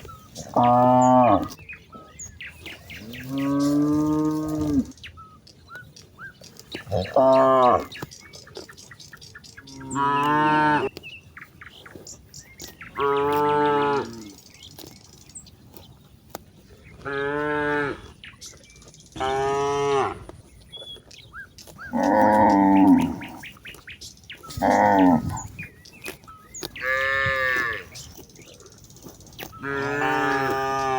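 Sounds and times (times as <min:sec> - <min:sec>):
cattle mooing: 0:00.4 - 0:01.6, 0:06.9 - 0:07.9, 0:09.7 - 0:10.9, 0:13.0 - 0:14.3, 0:19.2 - 0:20.3, 0:21.9 - 0:23.5, 0:24.5 - 0:25.6, 0:26.8 - 0:28.0, 0:29.6 - 0:30.9.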